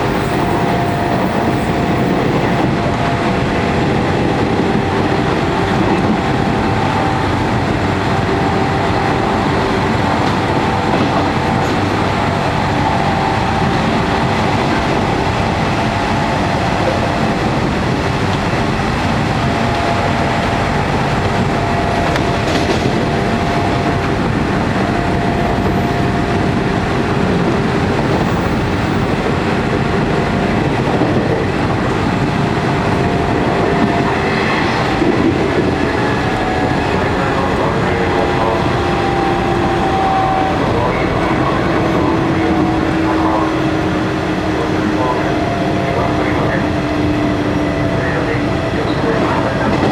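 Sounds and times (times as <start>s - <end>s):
train rolling rumble: 0.0s - 49.9s
wheel clatter over rail joints: 15.8s - 34.1s.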